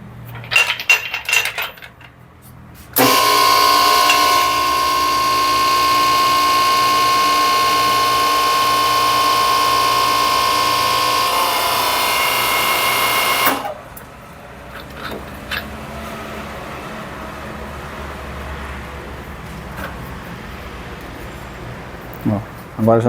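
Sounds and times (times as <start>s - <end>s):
crimping press motor whine: 3.0s - 14.1s.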